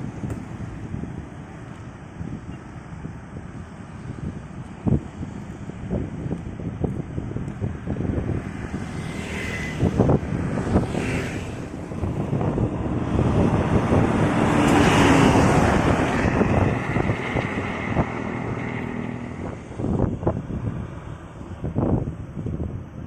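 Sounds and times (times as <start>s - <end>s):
wind buffeting microphone: 0.0s - 23.0s
road vehicle passing: 7.3s - 22.6s.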